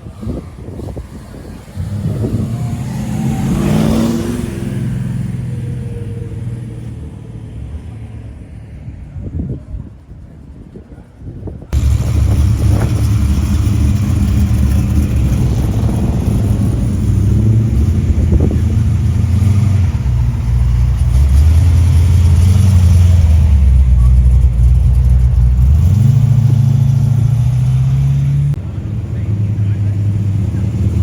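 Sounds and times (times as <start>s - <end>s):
car engine running: 11.7s - 31.0s.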